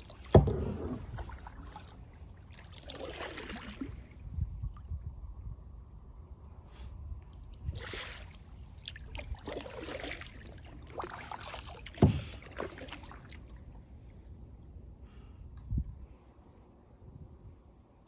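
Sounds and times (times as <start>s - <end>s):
paddle strokes splashing: 0.0s - 4.2s, 7.5s - 13.9s.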